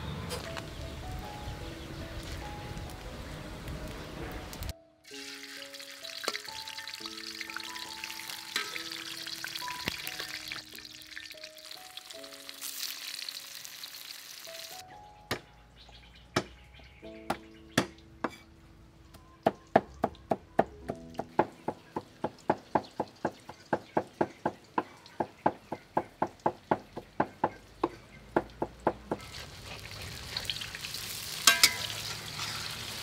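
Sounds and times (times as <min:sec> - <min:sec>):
background music: 0:00.0 - 0:29.0
food sizzling in hot oil: 0:04.4 - 0:14.8, 0:29.1 - 0:33.0.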